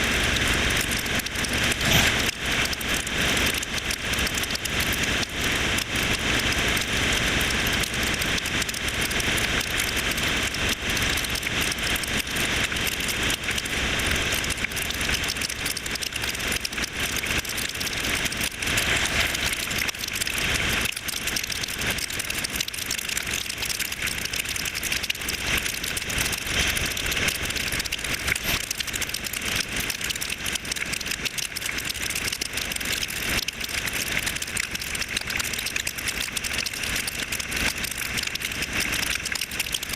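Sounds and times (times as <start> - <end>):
rain and road noise rushing: 0.0 - 23.8, 24.4 - 30.8
motorcycle engine running: 0.0 - 39.9
raindrops clicking: 0.0 - 39.9.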